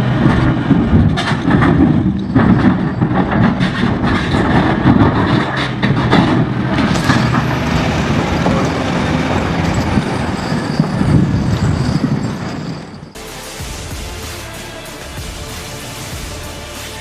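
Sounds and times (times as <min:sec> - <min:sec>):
diesel engine with mechanical clatter: 0:00.0 - 0:17.0
music: 0:13.2 - 0:17.0.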